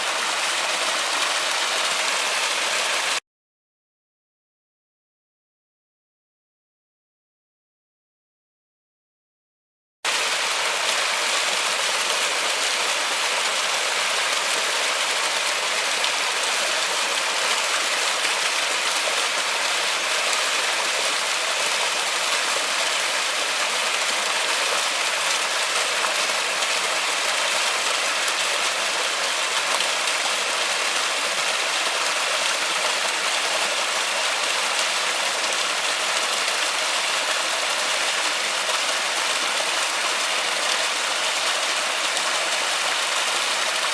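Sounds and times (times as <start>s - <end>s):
dense rain in forest: 0.0s - 3.2s, 10.1s - 43.9s.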